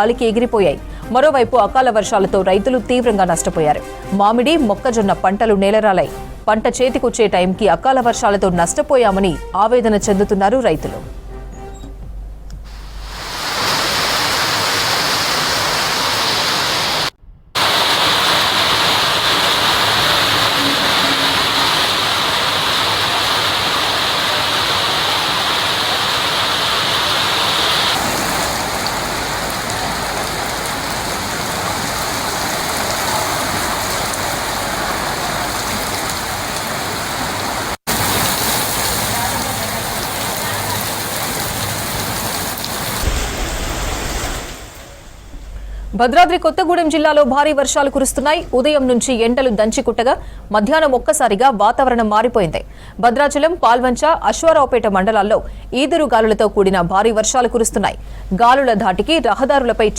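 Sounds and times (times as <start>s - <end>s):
heavy rain pouring: 12.6s - 45.8s.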